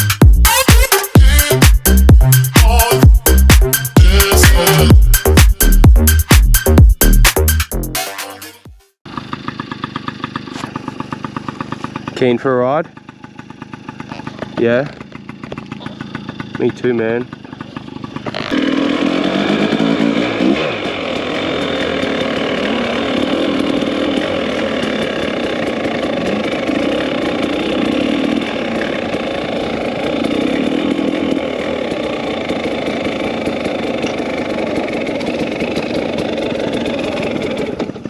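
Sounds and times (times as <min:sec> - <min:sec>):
dirt bike engines running: 0:09.1 - 0:38.0.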